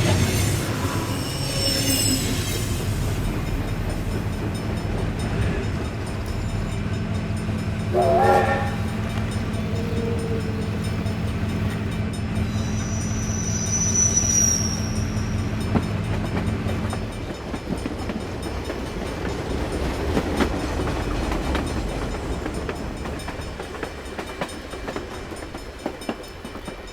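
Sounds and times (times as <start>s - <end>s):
train running hum: 0.0s - 26.9s
high thin tone: 7.9s - 11.2s.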